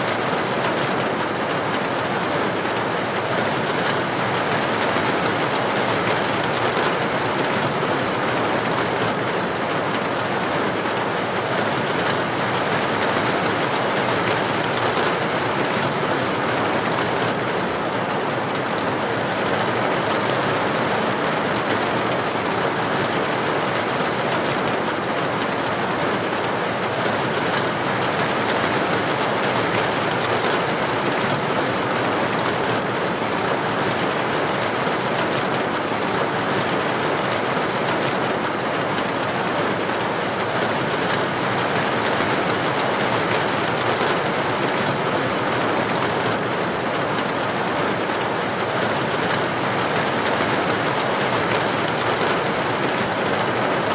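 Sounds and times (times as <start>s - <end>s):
heavy rain on a street: 0.0s - 53.9s.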